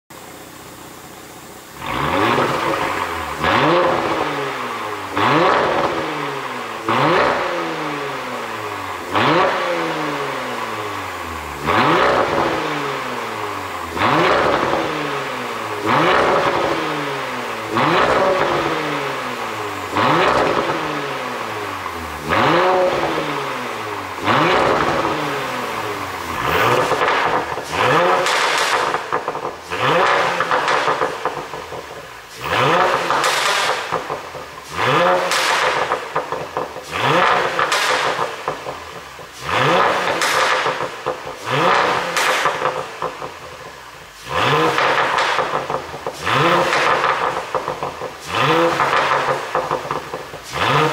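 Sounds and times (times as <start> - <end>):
car engine revving and crackling: 1.4 - 50.9.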